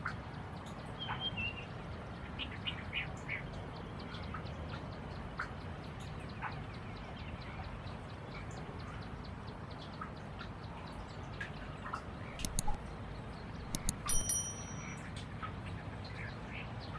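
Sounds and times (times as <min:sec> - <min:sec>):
faint small ticks: 0:12.4 - 0:12.8, 0:13.7 - 0:15.0.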